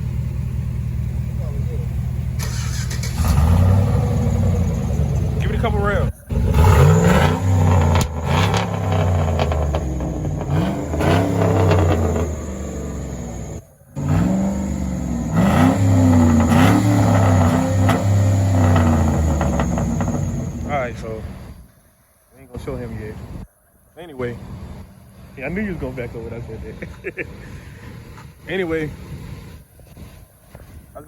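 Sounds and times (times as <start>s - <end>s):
truck engine revving: 1.4s - 21.5s.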